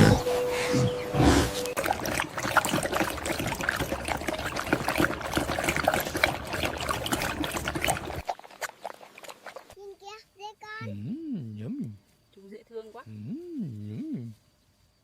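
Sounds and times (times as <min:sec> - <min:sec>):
water trickling and splashing: 0:01.6 - 0:10.0.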